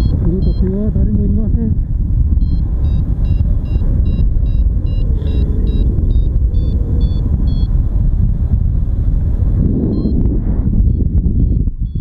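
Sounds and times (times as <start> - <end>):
variometer short beeps: 0.0 - 1.0, 2.4 - 7.7, 9.9 - 12.0
wind rumble on microphone: 0.0 - 12.0.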